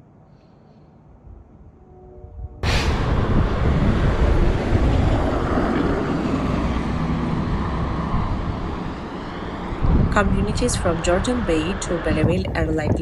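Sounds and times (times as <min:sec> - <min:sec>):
road vehicle engine and tyre rumble: 0:02.6 - 0:13.0.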